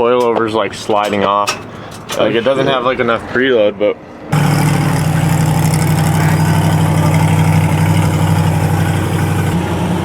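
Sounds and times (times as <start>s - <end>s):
vehicle engine idling: 4.3s - 10.0s.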